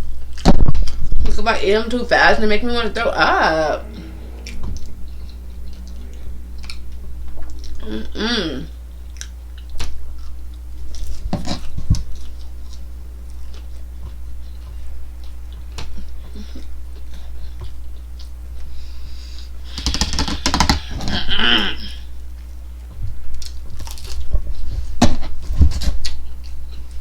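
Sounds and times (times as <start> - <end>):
steady low hum: 0.0 - 27.0
chewing and mouth sounds: 22.4 - 27.0.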